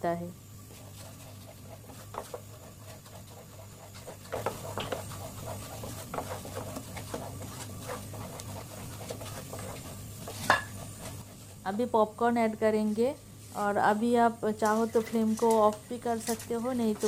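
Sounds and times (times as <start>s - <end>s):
spoon scraping a pan: 0.7s - 11.3s, 14.5s - 17.0s.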